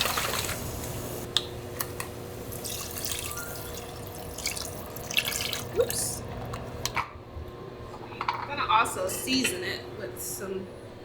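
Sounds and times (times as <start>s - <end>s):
liquid pouring into a pot: 2.5s - 6.2s.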